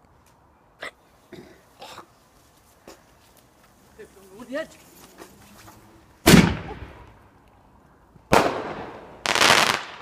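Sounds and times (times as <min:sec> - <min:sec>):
fireworks banging: 0:06.2 - 0:07.2, 0:08.3 - 0:10.0
firework crack: 0:06.2 - 0:07.3, 0:08.3 - 0:10.0.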